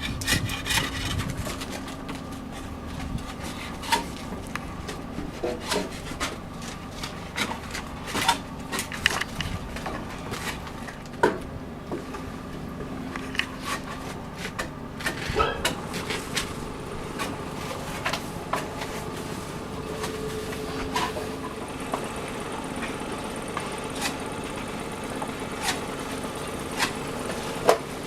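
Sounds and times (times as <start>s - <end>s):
wooden boards knocking and scraping: 0.0s - 19.2s.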